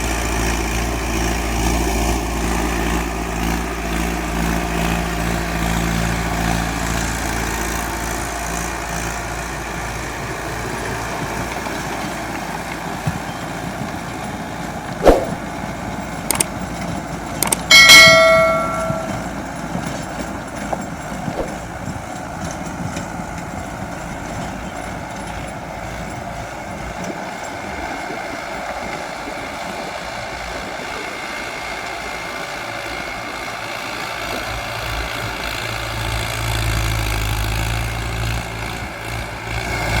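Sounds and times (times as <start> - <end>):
sharp knock: 15.0 - 15.4, 17.7 - 19.3
ringing metallic clang: 17.7 - 19.5.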